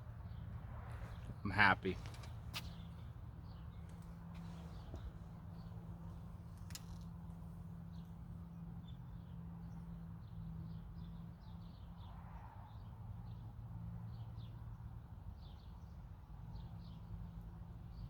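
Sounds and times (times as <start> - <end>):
small birds chirping: 0.3 - 12.1.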